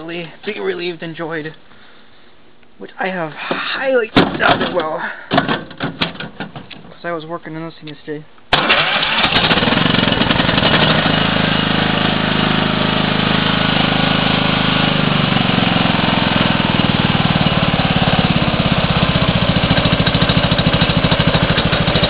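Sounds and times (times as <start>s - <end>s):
lawn tractor engine running: 8.6s - 22.0s.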